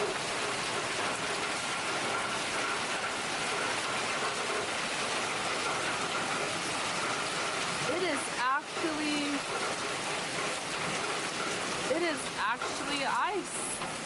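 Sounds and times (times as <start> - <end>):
hail pattering: 0.0 - 14.0.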